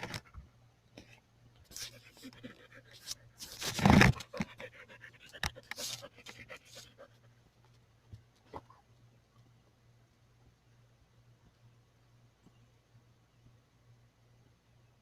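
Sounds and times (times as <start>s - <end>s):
dog panting: 1.7s - 7.7s.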